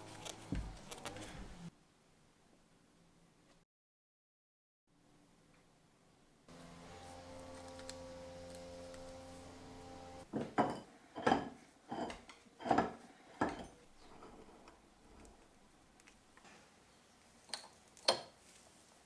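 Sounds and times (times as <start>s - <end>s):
small electric motor humming: 6.5s - 10.2s.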